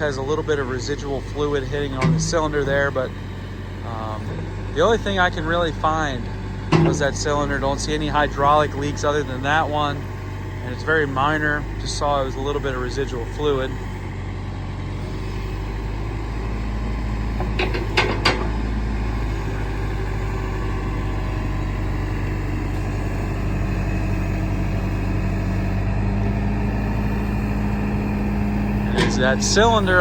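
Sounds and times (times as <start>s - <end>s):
backhoe diesel engine running: 0.0s - 30.0s
short metal clanks: 6.7s - 7.2s, 17.4s - 18.6s, 28.9s - 29.3s.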